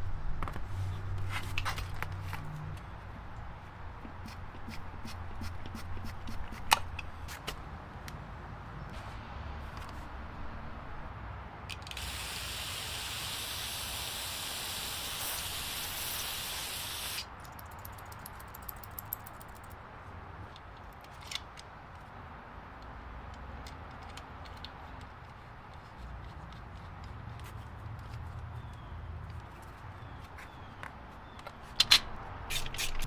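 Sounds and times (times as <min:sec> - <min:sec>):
pressurised spray hissing: 0:11.9 - 0:17.3.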